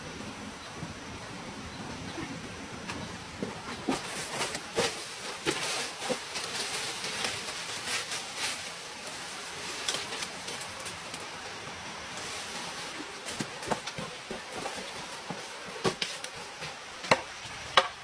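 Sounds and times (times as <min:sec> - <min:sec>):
steady hiss: 0:00.0 - 0:18.0
sharp knocks and cracks: 0:13.3 - 0:18.0.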